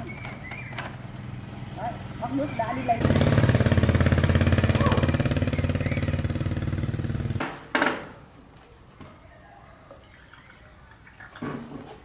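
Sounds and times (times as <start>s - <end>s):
small engine running: 1.2s - 7.4s.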